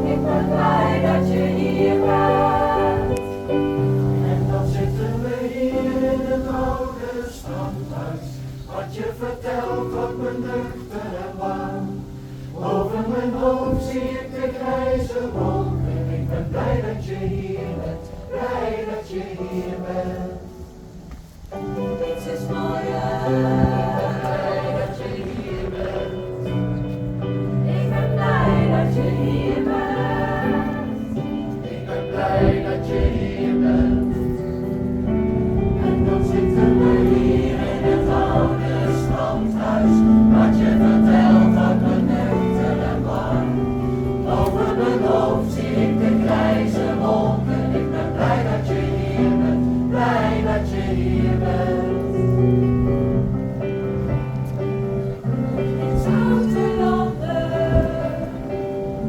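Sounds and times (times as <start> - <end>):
musical accompaniment: 0.0 - 59.0
pop choir singing in harmony: 0.0 - 59.0.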